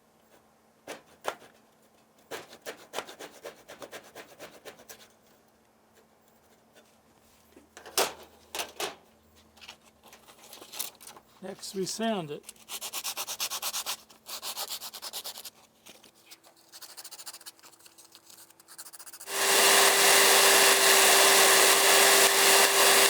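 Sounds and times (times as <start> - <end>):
hand saw cutting wood: 2.3 - 5.0, 19.2 - 23.0.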